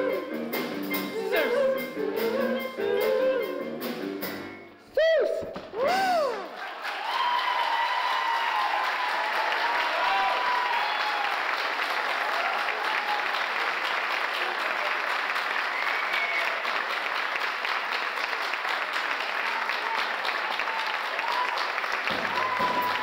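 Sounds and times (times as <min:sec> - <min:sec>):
audience applauding: 0:05.6 - 0:23.0.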